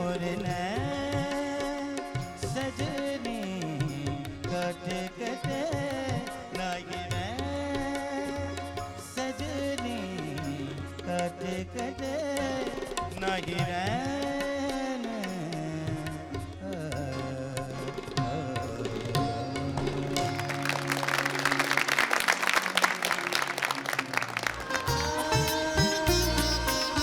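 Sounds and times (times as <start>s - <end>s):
tabla playing: 0.0s - 27.0s
sliding melodic line: 24.4s - 27.0s.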